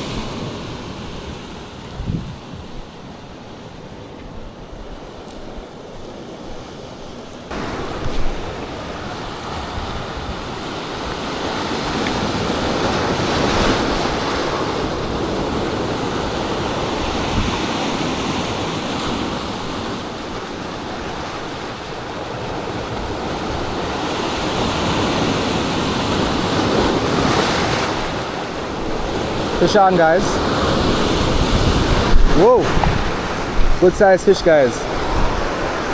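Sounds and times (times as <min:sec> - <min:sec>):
surf washing onto shore: 0:00.0 - 0:35.9
wind buffeting microphone: 0:00.0 - 0:35.9.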